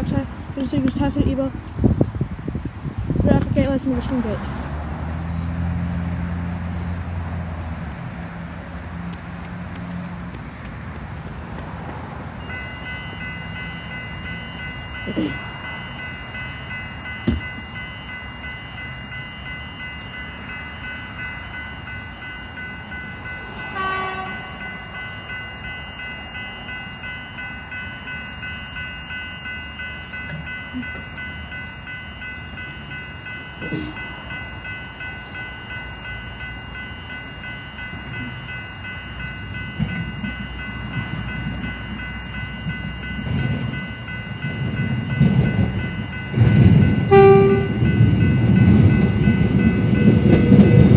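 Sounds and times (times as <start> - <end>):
train rumble: 0.0 - 50.9
level crossing warning bells: 7.9 - 50.9
train horn blast: 23.7 - 24.5, 47.1 - 47.8.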